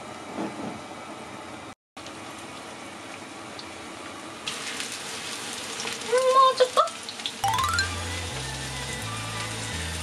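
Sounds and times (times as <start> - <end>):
pork cutlets sizzling in oil: 2.0 - 10.0.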